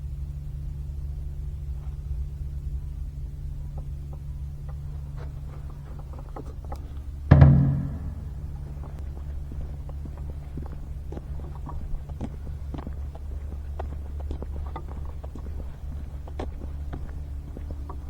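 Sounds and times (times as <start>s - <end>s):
loud resonant knock: 7.3s - 8.8s
steady low rumble: 7.3s - 8.8s.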